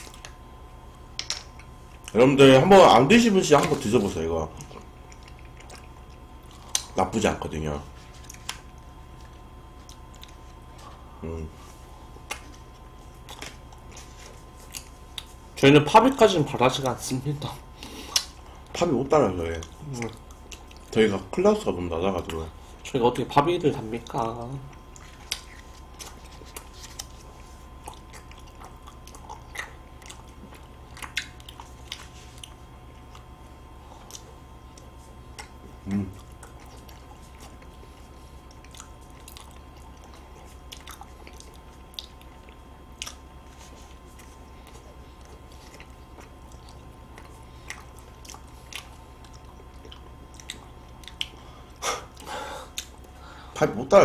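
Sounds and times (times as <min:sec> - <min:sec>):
chewing ice cream sandwich: 0:00.0 - 0:53.2
faint steady hum: 0:00.0 - 0:54.0.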